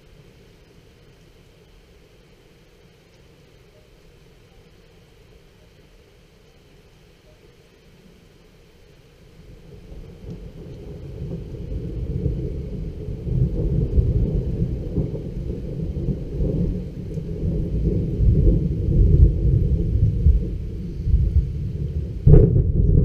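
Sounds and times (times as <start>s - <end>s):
faint rain: 0.0s - 23.0s
rolling thunder: 9.4s - 23.0s.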